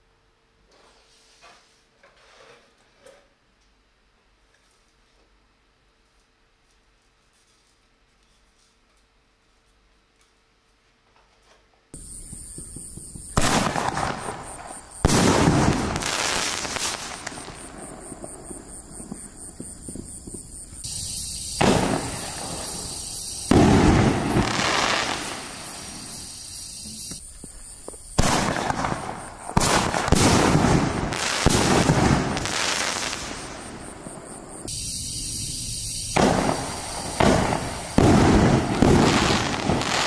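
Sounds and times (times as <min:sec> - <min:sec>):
firework booms with rumbling tail: 0:12.0 - 0:26.2, 0:27.4 - 0:35.3, 0:36.0 - 0:40.0
sharp firework pops: 0:12.0 - 0:26.3, 0:27.0 - 0:34.8, 0:36.0 - 0:40.0.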